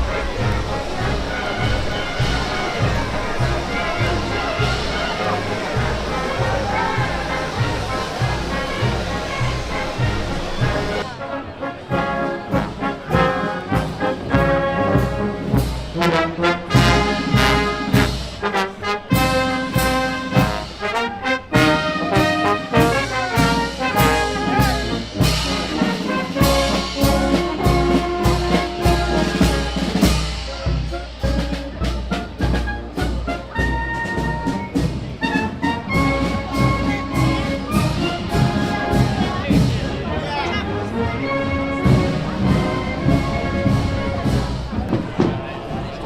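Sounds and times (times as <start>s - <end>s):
trombones and trumpets playing: 0.0s - 44.8s
steady drum beat: 12.5s - 40.0s.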